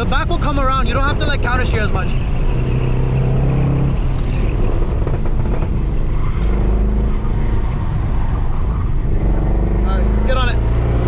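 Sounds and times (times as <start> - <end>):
car engine running hard: 0.0 - 11.0
engine exhaust pops: 1.1 - 6.7.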